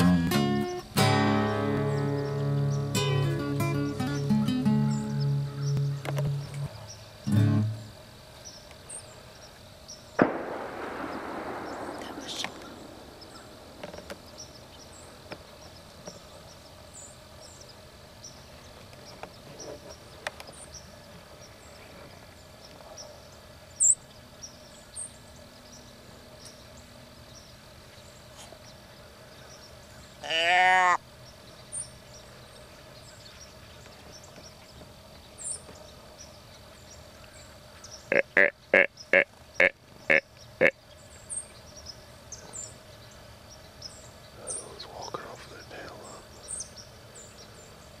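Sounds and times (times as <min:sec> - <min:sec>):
faint bird chirps: 0:01.5 - 0:30.3, 0:31.1 - 0:48.0
loud drawn-out animal call: 0:30.2 - 0:31.0, 0:38.1 - 0:40.8.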